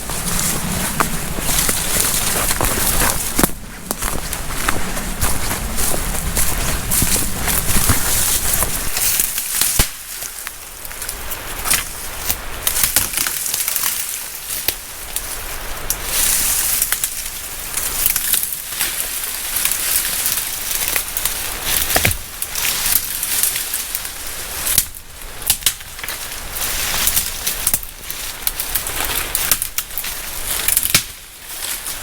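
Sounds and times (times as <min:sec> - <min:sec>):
twigs snapping underfoot: 0:00.0 - 0:15.3, 0:15.9 - 0:32.0
footsteps crunching on forest trail: 0:00.0 - 0:15.4.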